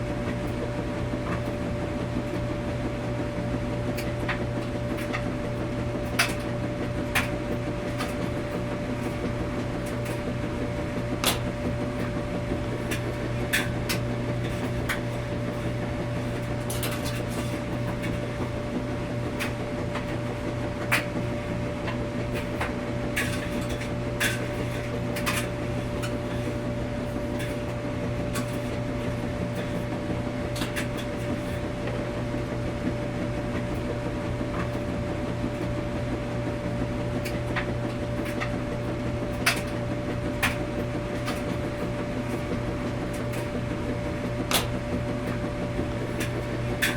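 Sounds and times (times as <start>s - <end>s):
washing machine hum: 0.0s - 46.9s.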